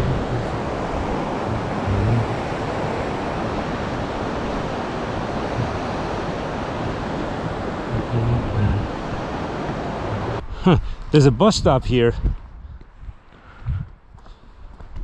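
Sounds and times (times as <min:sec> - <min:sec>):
steady rushing noise: 0:00.0 - 0:11.8.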